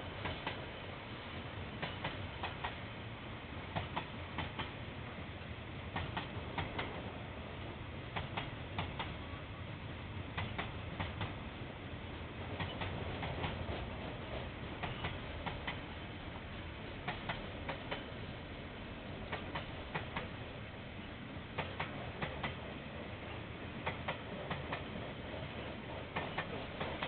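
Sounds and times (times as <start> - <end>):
train wheels clicking over rail joint: 0.0 - 0.8, 1.8 - 2.9, 3.7 - 4.8, 5.9 - 7.1, 8.1 - 9.2, 10.3 - 11.5, 12.4 - 16.1, 16.9 - 18.3, 19.2 - 20.4, 21.5 - 27.0.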